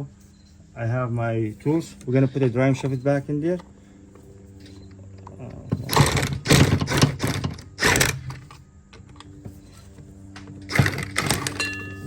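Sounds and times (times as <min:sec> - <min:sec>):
faint steady hum: 0:00.0 - 0:12.0
metal tools clattering: 0:10.7 - 0:12.0.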